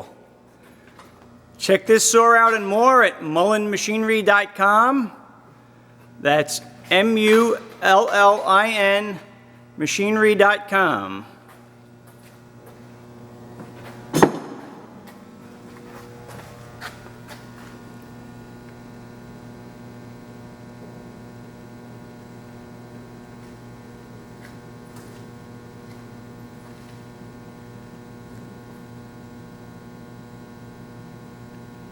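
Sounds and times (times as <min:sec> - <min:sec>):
bandsaw electric hum: 0:00.0 - 0:31.9
sharp clunk: 0:14.2 - 0:14.9.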